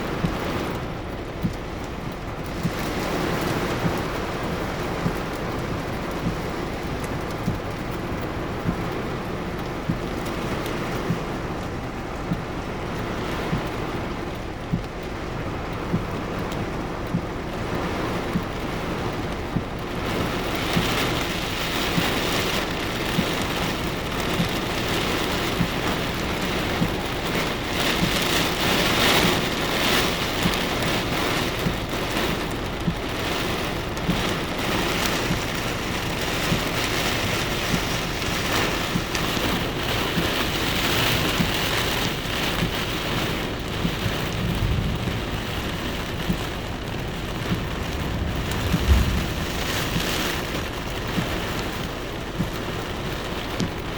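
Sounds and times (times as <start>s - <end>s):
heavy rain pouring: 0.0s - 53.9s
strong wind: 0.0s - 53.9s
low rumble: 44.3s - 51.8s.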